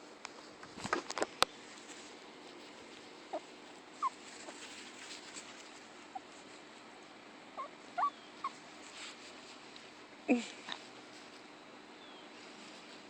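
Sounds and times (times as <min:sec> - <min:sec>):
dog whimpering: 0:07.6 - 0:08.6.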